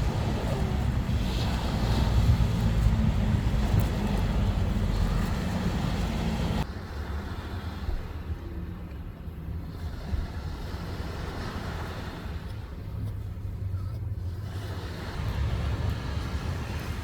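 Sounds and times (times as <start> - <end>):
wind buffeting microphone: 0.0 - 6.7, 9.8 - 17.0
sea surf: 0.0 - 8.9, 9.5 - 17.0.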